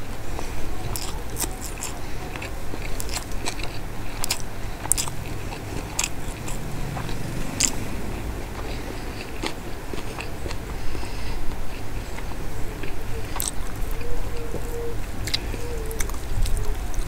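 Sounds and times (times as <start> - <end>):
chewing food: 0.0 - 17.0
wet lip smacks: 12.8 - 13.8.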